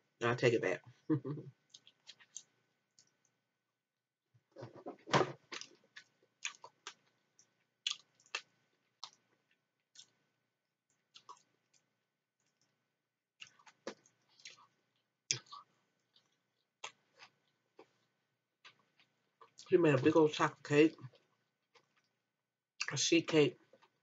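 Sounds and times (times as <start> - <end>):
chewing with wet mouth sounds: 1.6 - 3.3, 5.5 - 10.2, 10.9 - 11.8, 13.4 - 19.7.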